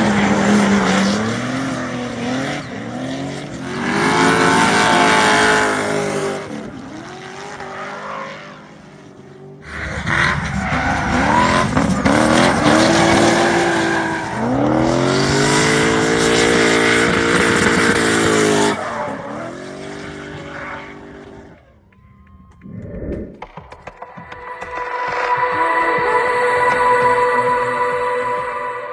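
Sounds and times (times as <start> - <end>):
car engine revving hard: 0.0 - 21.7.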